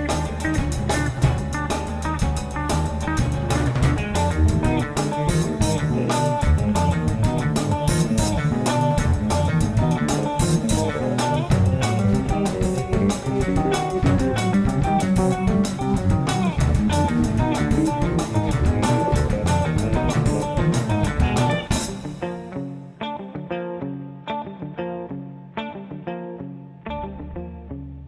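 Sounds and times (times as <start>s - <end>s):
drum kit beat: 0.0s - 22.4s
bass guitar: 0.0s - 28.0s
guitars: 0.0s - 28.0s.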